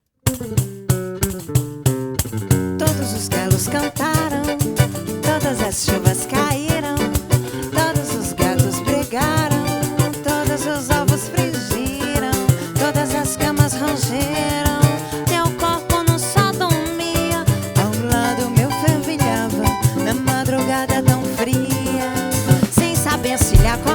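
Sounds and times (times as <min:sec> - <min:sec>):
woman singing: 0:02.8 - 0:23.9
samba band playing: 0:03.2 - 0:15.1, 0:20.8 - 0:23.9.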